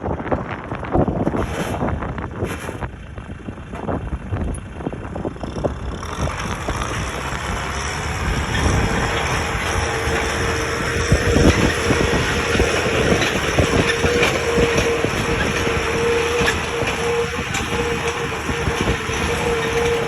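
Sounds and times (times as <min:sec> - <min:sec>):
heavy vehicle running and rattling: 0:00.0 - 0:20.0
steady whine: 0:06.6 - 0:20.0.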